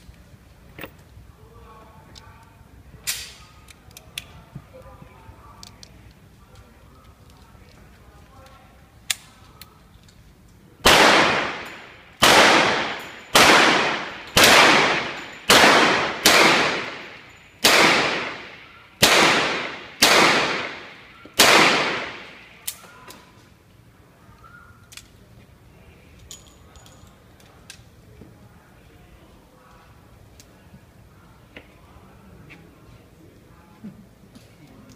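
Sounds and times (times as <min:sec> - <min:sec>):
revolver gunshots echoing: 0:10.8 - 0:22.6.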